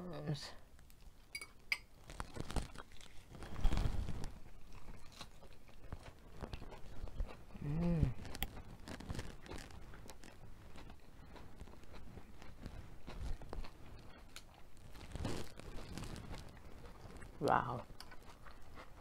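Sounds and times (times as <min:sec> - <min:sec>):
crunching and chewing lettuce: 0:01.9 - 0:19.0
person humming mm: 0:07.5 - 0:08.3.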